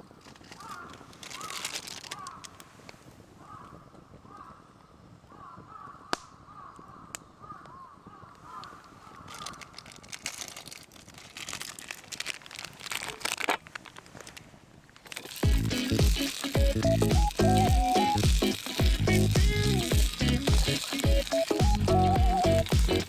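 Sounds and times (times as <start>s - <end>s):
dense crackling crinkling: 0.0s - 23.0s
crows cawing: 0.5s - 2.7s, 3.4s - 10.2s.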